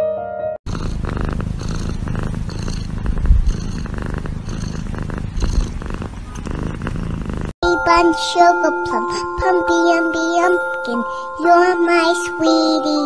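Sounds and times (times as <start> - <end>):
cat purring: 0.7 - 7.6.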